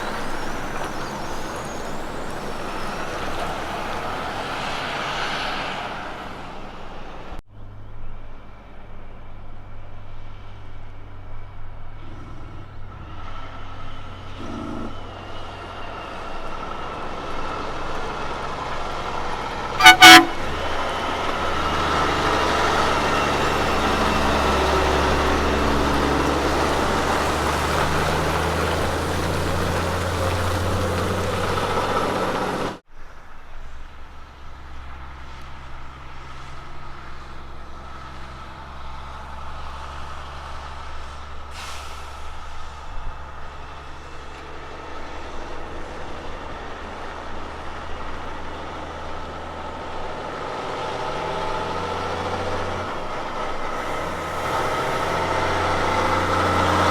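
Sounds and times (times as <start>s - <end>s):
diesel truck engine drone: 0.0s - 56.9s
truck horn toot: 14.4s - 15.1s, 19.8s - 21.0s.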